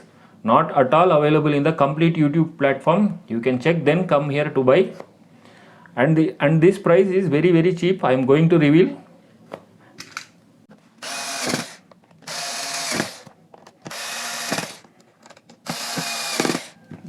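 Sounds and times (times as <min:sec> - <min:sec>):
electric screwdriver motor whining: 0:11.0 - 0:14.9, 0:15.5 - 0:16.8.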